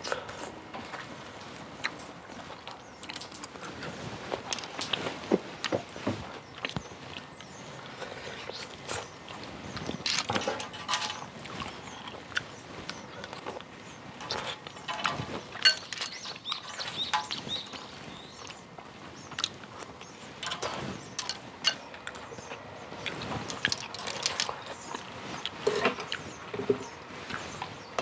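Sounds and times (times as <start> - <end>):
chewing and smacking: 0.0 - 18.6, 19.2 - 28.0.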